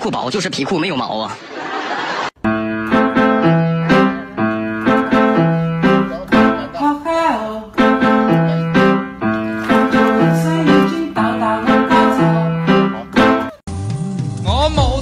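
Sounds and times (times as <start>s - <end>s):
keyboard tune: 2.4s - 13.7s
repeating bass line: 7.8s - 13.6s.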